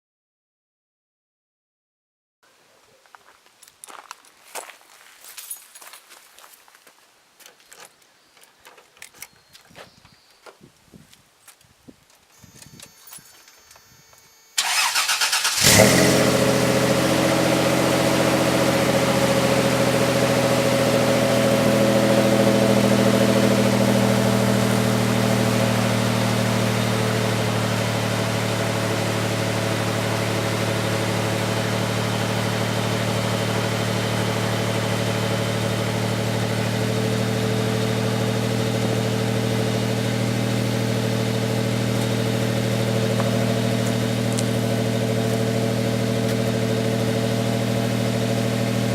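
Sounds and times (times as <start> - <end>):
starter motor cranking: 14.6 - 16.1
engine idling deep and throaty: 15.6 - 48.9.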